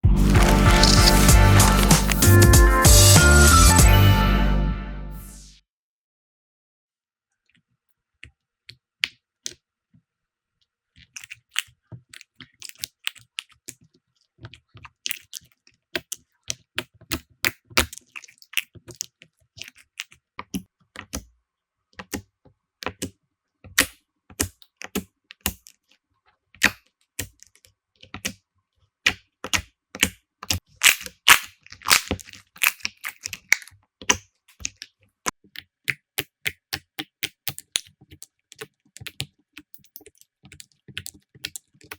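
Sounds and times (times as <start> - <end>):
slime clicking and popping: 0.3 - 2.2, 29.0 - 34.9, 35.5 - 41.9.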